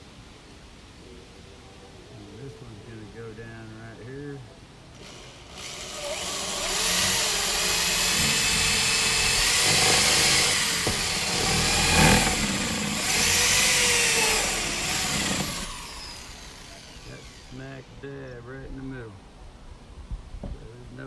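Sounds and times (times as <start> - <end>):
electric drill boring into wood: 5.0 - 17.6.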